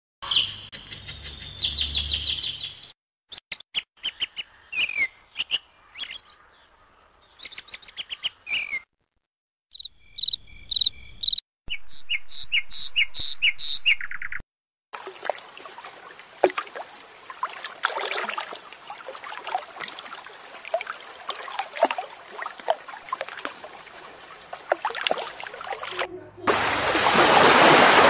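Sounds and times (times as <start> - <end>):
fast repeated bird chirps: 0.2 - 6.4, 7.3 - 8.9, 9.7 - 14.4
small birds chirping and trilling: 0.2 - 8.9, 9.7 - 14.4.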